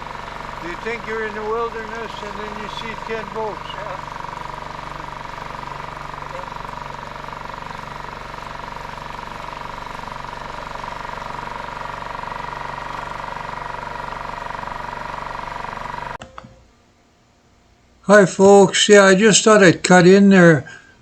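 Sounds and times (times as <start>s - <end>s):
outboard motor running: 0.0s - 16.2s
steady whine: 0.0s - 21.0s.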